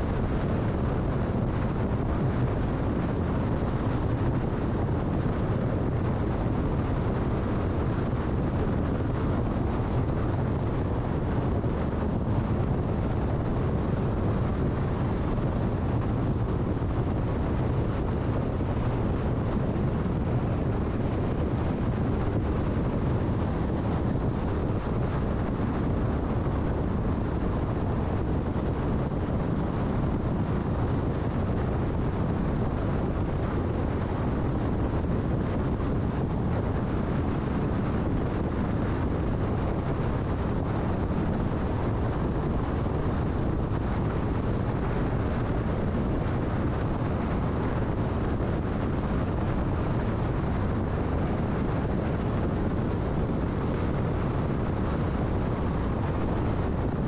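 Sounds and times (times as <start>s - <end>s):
wind noise: 0.0s - 57.0s.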